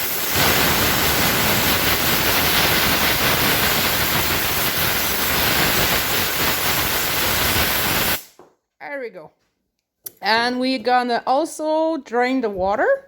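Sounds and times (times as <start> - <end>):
compressed air hissing: 0.0 - 8.4.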